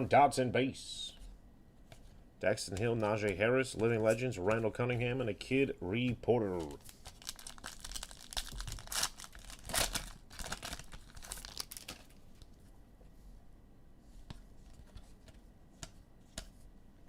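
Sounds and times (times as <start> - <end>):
foil pack tearing and crinkling: 6.8 - 12.2.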